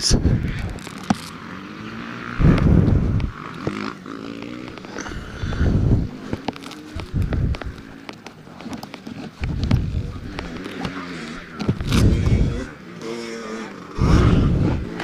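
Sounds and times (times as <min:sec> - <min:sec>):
wind buffeting microphone: 0:00.0 - 0:01.2, 0:02.3 - 0:08.0, 0:09.3 - 0:12.8, 0:13.9 - 0:15.0
dirt bikes revving: 0:00.0 - 0:15.0.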